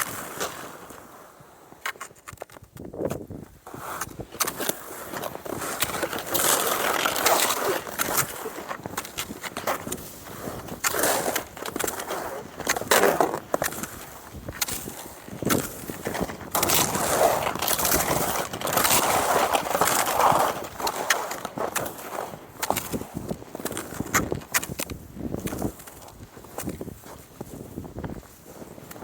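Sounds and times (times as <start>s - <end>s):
skis swishing over snow: 0.0s - 29.0s
sharp clicks and crunches: 1.8s - 27.2s.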